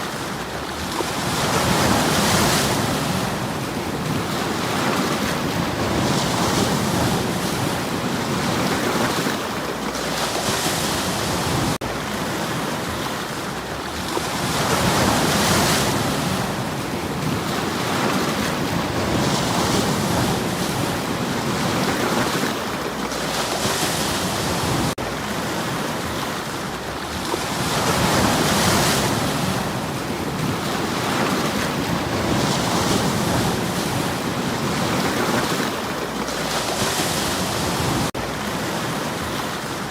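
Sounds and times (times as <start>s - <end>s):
waves washing over stony shore: 0.0s - 39.9s.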